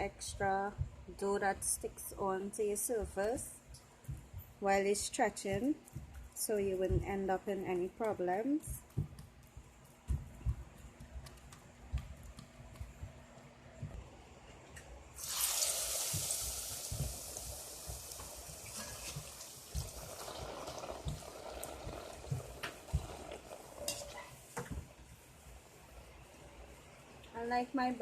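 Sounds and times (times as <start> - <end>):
dough thumping: 5.4 - 14.0
dough sizzling in hot oil: 15.2 - 24.2.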